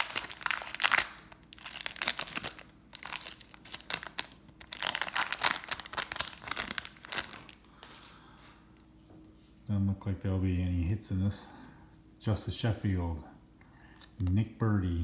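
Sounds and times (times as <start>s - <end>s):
foil wrapper tearing and crinkling: 0.0s - 8.1s.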